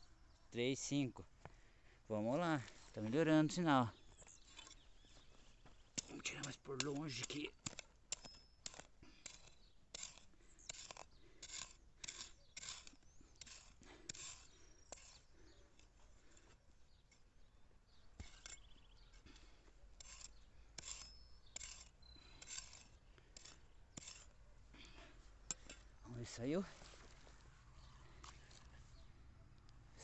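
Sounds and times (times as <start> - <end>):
digging tool scraping soil: 6.0 - 16.7, 18.1 - 27.4.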